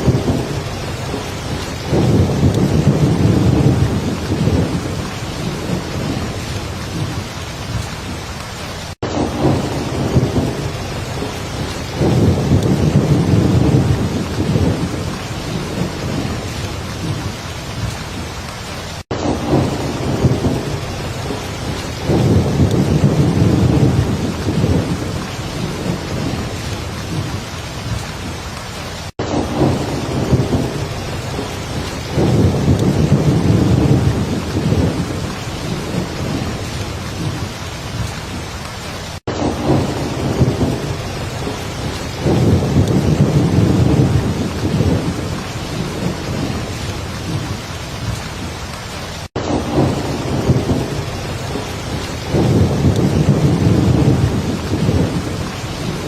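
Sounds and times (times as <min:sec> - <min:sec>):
low rolling thunder: 0:00.0 - 0:18.3, 0:19.1 - 0:38.4, 0:39.2 - 0:48.7, 0:49.3 - 0:56.0
heavy rain: 0:00.0 - 0:56.0.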